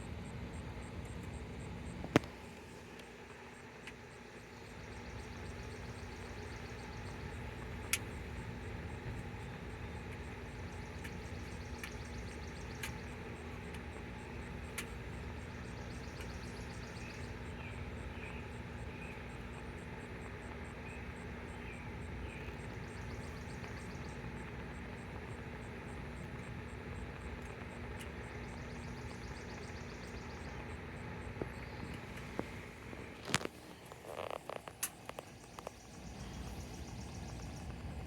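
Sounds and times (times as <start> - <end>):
insects chirping: 0.0 - 38.0
faint clicks: 4.6 - 8.4, 9.0 - 17.3, 22.4 - 38.0.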